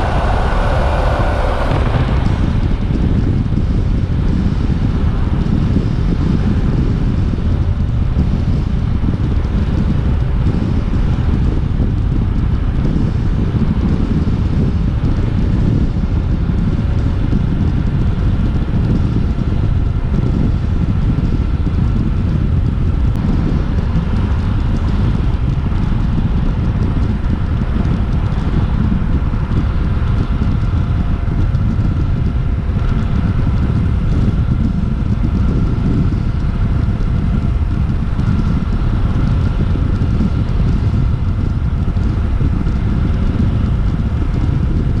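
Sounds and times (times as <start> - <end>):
motorcycle engine droning: 0.0 - 15.3
wind rushing on microphone: 0.0 - 45.0.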